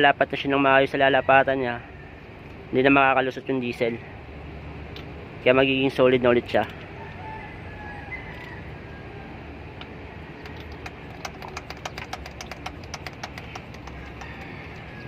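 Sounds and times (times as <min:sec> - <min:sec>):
low engine hum: 0:02.1 - 0:15.0
hand fuel pump clicking: 0:10.4 - 0:15.0.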